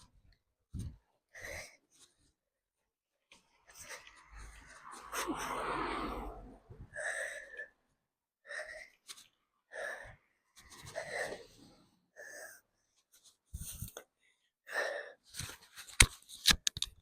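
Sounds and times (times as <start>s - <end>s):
cyclist breathing hard: 0.8s - 2.3s, 3.5s - 15.4s.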